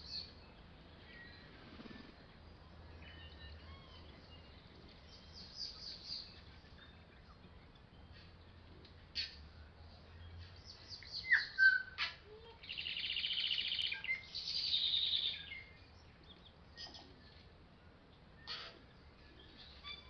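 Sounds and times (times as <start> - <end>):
birds chirping: 0.0 - 20.0
bird trills: 10.7 - 15.8, 18.4 - 20.0.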